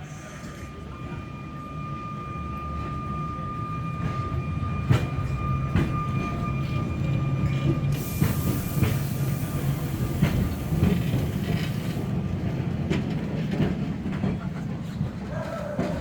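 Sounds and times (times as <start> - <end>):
electric tram rumbling: 0.0 - 16.0
hiss: 7.9 - 12.1.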